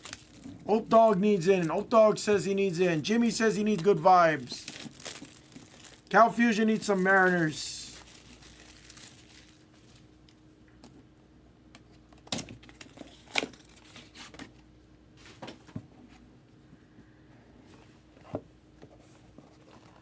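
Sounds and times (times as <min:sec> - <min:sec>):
packaging crinkling and tearing: 0:00.0 - 0:02.0, 0:03.7 - 0:10.4.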